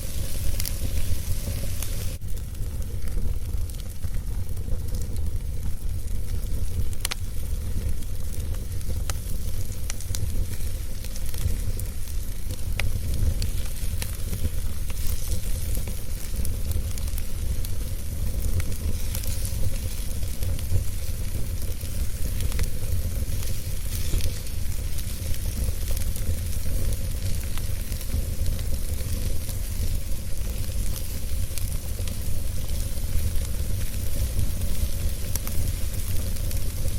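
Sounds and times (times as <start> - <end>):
wood fire crackling: 0.0 - 36.9.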